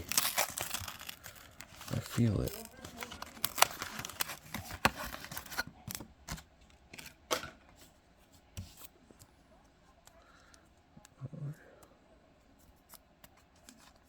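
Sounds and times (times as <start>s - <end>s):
plastic wrapper crinkling and tearing: 0.0s - 6.4s
cards being handled: 0.0s - 7.8s, 12.6s - 14.0s.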